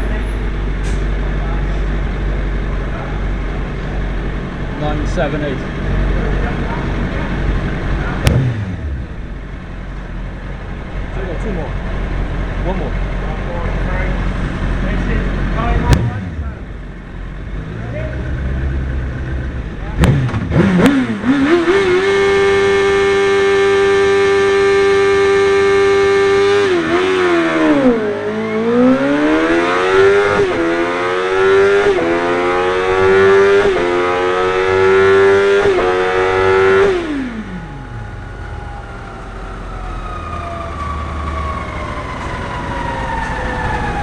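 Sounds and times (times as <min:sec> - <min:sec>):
motorcycle engine revving: 0:00.0 - 0:44.0
falling whine: 0:35.8 - 0:44.0.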